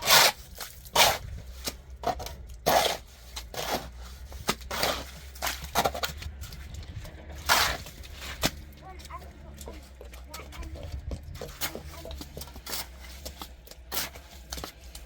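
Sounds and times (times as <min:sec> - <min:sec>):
rasping scrapes by hand: 0:00.0 - 0:01.8, 0:02.6 - 0:06.0.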